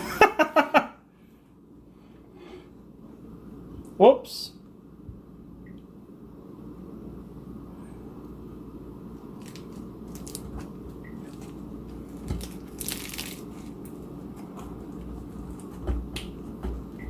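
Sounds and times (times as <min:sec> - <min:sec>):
lettuce crunching: 0:09.3 - 0:15.7.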